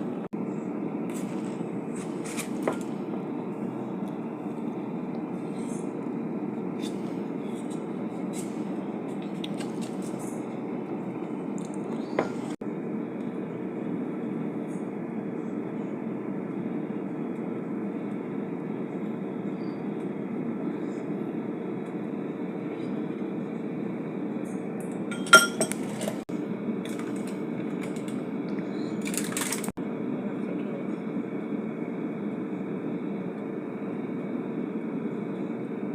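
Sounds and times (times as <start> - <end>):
steady hum: 0.0 - 35.9
utensil clinking against dish: 25.1 - 26.1.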